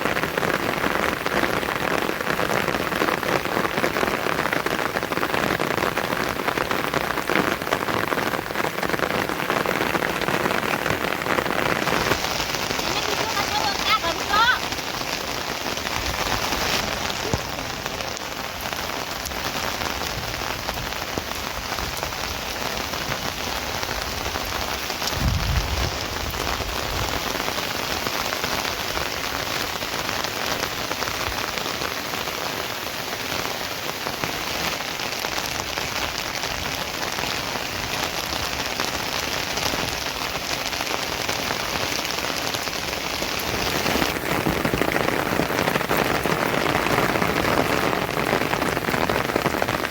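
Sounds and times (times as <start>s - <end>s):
rain falling: 0.0s - 49.9s
low rumble: 25.1s - 27.1s.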